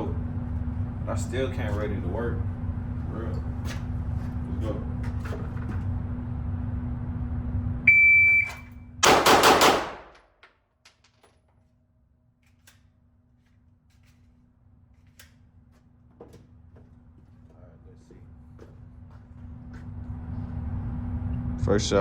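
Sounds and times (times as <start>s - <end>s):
shot timer beep: 7.9s - 8.8s
pistol shots indoors: 9.0s - 10.4s.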